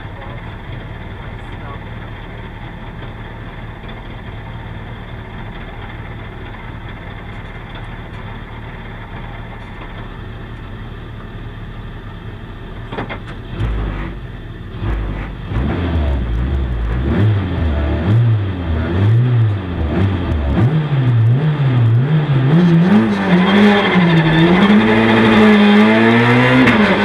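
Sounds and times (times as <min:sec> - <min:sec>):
rally car engine idling: 0:00.0 - 0:27.0
engine blipped: 0:13.5 - 0:27.0.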